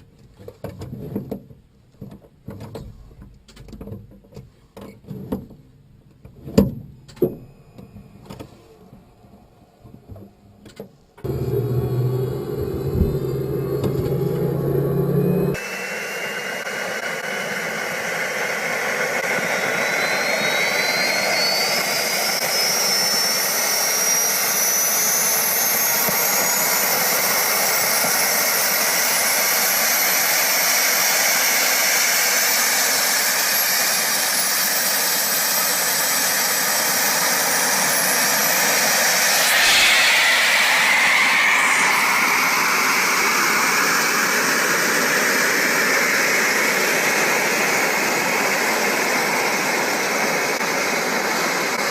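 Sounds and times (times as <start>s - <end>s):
jet engines whining: 11.2s - 51.9s.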